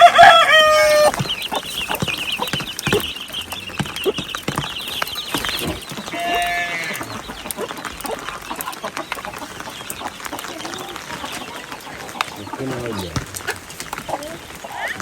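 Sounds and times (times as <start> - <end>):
rooster crowing: 0.0 - 1.2.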